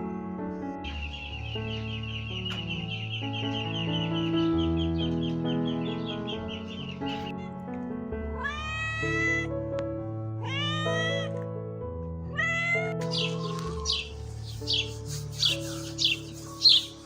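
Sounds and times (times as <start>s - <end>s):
background music: 0.0s - 17.0s
cat meowing: 8.4s - 9.5s, 10.4s - 11.4s, 12.3s - 14.2s.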